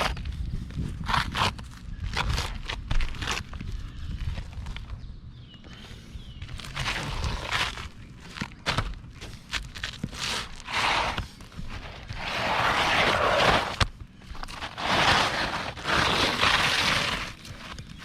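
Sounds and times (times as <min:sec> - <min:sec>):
scraping on roof shingles: 0:06.6 - 0:08.0, 0:08.6 - 0:18.0.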